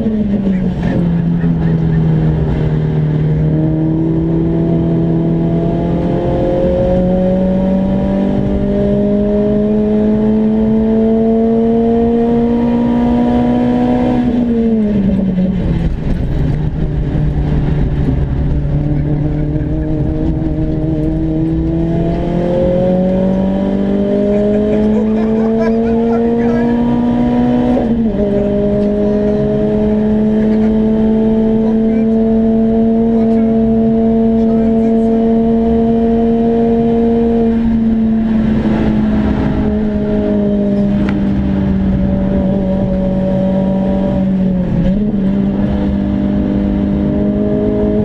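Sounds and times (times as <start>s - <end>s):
car engine revving from inside: 0.0s - 48.0s.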